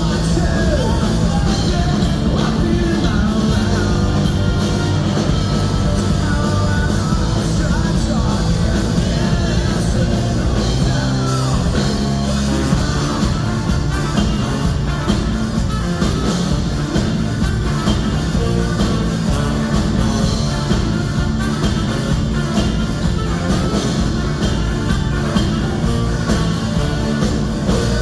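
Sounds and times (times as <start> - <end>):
person singing: 0.0 - 13.4
bass: 0.0 - 28.0
drums: 0.0 - 28.0
guitars: 0.0 - 28.0.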